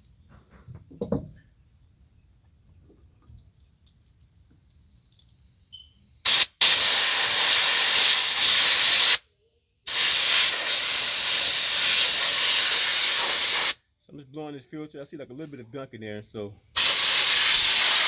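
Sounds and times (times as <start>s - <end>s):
compressed air blow gun hissing: 6.3s - 9.2s, 9.9s - 13.8s, 16.8s - 18.0s.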